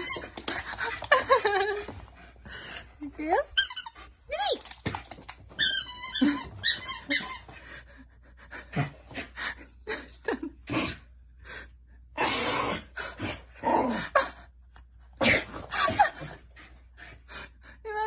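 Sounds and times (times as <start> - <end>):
dog bed squeaks: 5.6 - 7.5.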